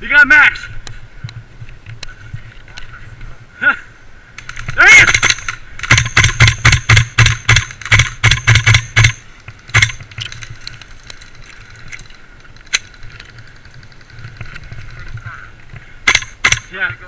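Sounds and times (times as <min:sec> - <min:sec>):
airsoft gun shots: 0:04.5 - 0:10.0, 0:16.0 - 0:16.8.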